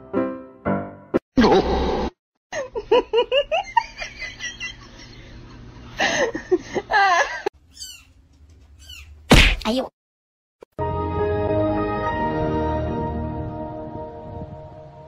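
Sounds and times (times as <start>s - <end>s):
person laughing: 2.5s - 7.5s.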